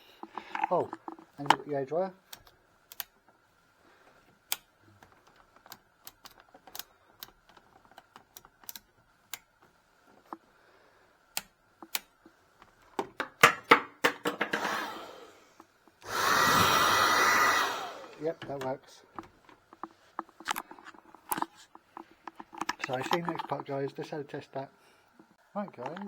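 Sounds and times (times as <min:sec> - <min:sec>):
hairdryer handling clicks and knocks: 0:11.4 - 0:14.8, 0:18.0 - 0:23.6
hairdryer running: 0:14.3 - 0:18.6.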